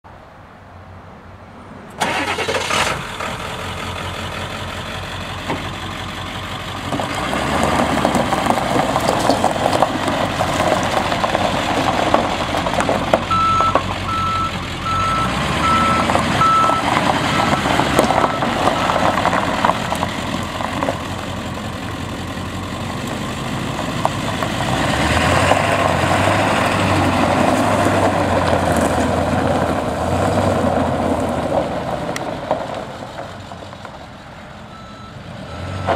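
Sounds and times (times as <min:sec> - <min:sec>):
diesel engine running: 0:02.0 - 0:35.9
reversing beeper: 0:13.3 - 0:19.7, 0:34.7 - 0:35.9.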